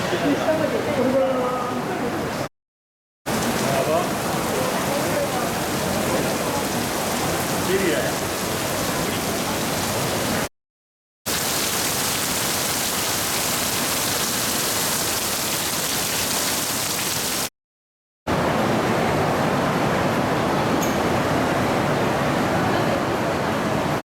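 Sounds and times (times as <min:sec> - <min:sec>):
heavy rain hissing: 0:03.3 - 0:10.5, 0:11.3 - 0:17.5.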